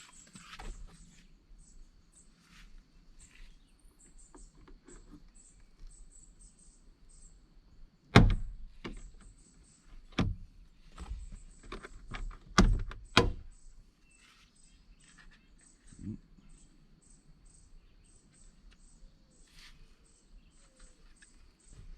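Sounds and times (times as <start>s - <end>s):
insects chirping: 0.0s - 21.9s
sharp knocks and clunks: 8.1s - 9.3s, 10.1s - 13.5s.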